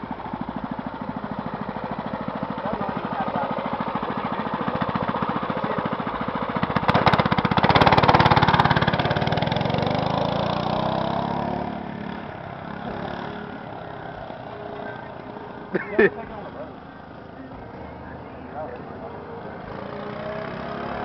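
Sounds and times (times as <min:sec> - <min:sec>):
small engine revving: 0:01.1 - 0:15.6, 0:19.4 - 0:21.0.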